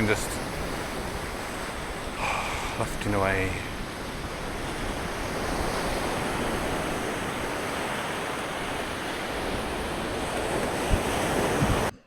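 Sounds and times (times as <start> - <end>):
surf washing onto shore: 0.0 - 12.0
wind: 0.0 - 12.0.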